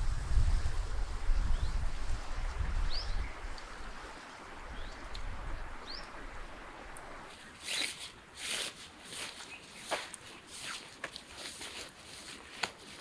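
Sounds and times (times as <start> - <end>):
footsteps crunching on stones: 7.3 - 13.0.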